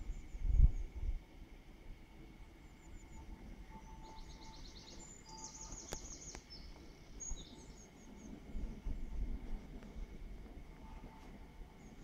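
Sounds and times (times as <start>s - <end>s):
low background rumble: 0.0s - 12.0s
songbirds trilling: 2.5s - 9.6s
faint clicks: 5.7s - 6.9s.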